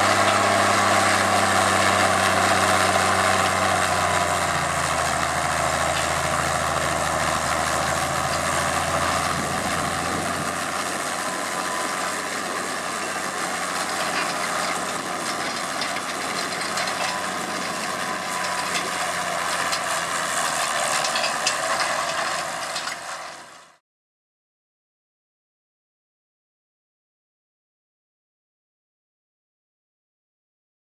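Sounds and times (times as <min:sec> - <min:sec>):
tractor diesel engine running: 0:00.0 - 0:23.8.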